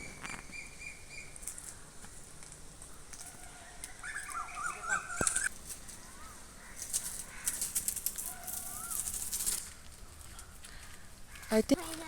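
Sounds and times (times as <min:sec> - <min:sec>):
dry crackling and rustling: 0:00.0 - 0:12.0
bird calling: 0:03.2 - 0:11.9.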